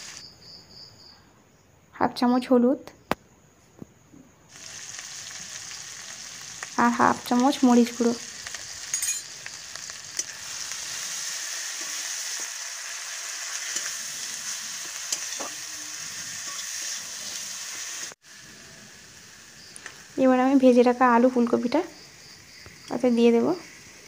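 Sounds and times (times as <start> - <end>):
food sizzling in hot oil: 0.0 - 0.3, 4.5 - 24.0
metal spatula scraping pan: 13.5 - 17.6.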